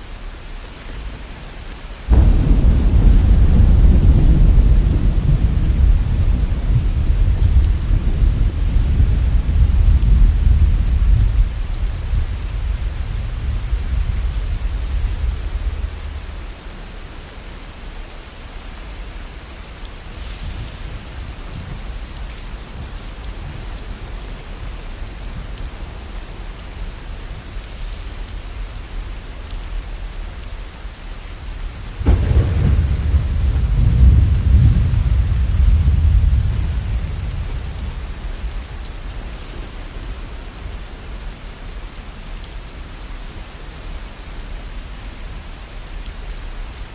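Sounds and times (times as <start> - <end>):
heavy rain falling: 0.0 - 46.9
thunder clap: 2.1 - 16.4, 32.0 - 38.6
thunder rolling: 2.1 - 16.6, 32.0 - 38.6.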